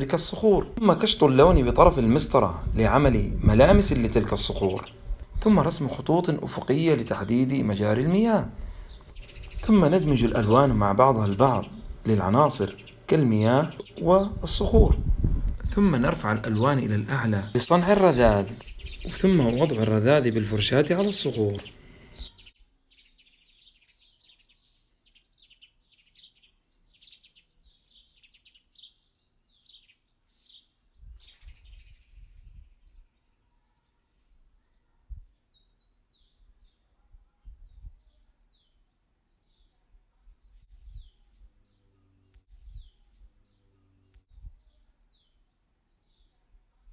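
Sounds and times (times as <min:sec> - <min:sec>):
birds chirping: 0:00.0 - 0:33.3, 0:37.4 - 0:46.9
low thumps: 0:00.6 - 0:06.0, 0:06.6 - 0:16.7.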